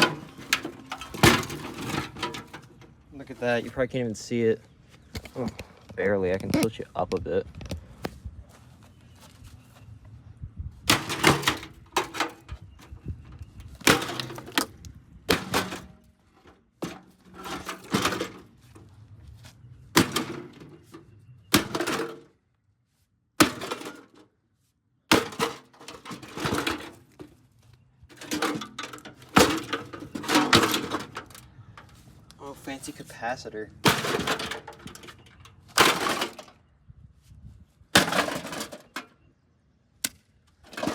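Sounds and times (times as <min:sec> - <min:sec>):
metal clattering: 0:00.0 - 0:03.7, 0:15.3 - 0:16.1, 0:16.8 - 0:18.6, 0:20.0 - 0:22.3, 0:28.1 - 0:32.0, 0:33.8 - 0:36.6, 0:38.0 - 0:39.1.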